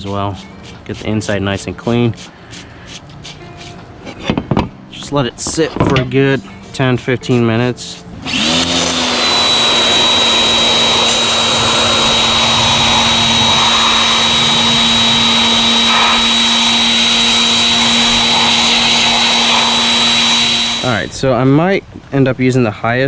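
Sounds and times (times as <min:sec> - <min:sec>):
water spray hissing: 0:00.0 - 0:03.8, 0:06.2 - 0:21.3
pressure washer motor whine: 0:08.2 - 0:21.2.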